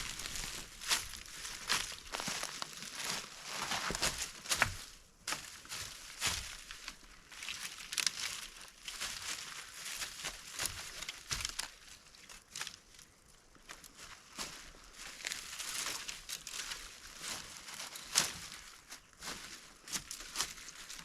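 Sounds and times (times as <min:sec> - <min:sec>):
rustling and crackling: 0:00.0 - 0:11.9.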